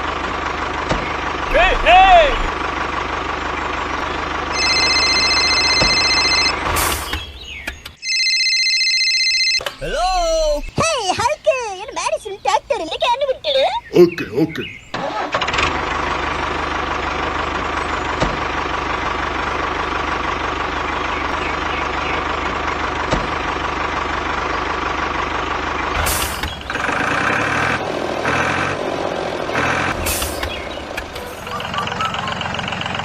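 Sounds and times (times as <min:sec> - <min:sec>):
mini tractor engine running: 0:00.0 - 0:06.8, 0:15.0 - 0:33.0.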